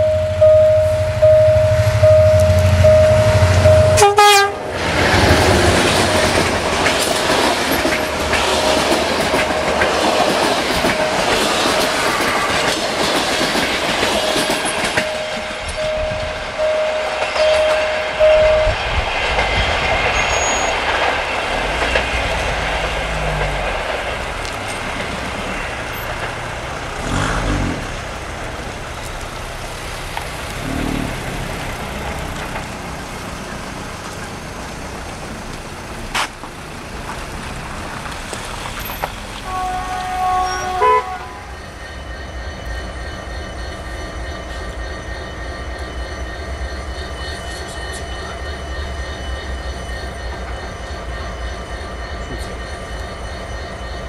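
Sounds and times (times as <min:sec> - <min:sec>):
train wheels clattering: 0:01.0 - 0:54.0
thin steady squeal: 0:14.1 - 0:27.0, 0:38.7 - 0:54.0.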